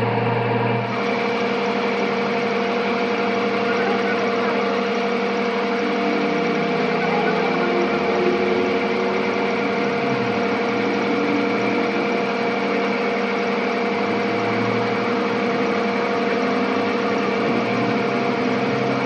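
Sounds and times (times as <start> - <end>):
workshop machine humming: 0.0 - 19.0.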